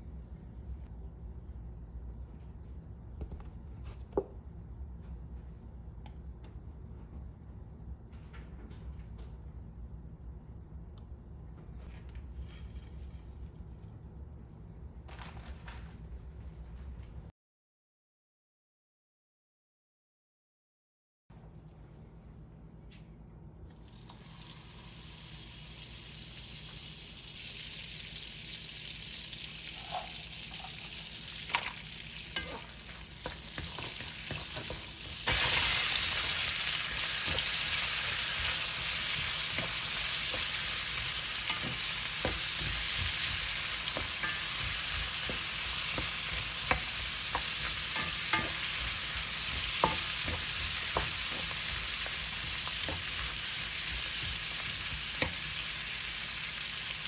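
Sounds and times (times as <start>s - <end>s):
food sizzling in a pan: 23.8s - 57.0s
spoon stirring in a pan: 32.3s - 55.6s.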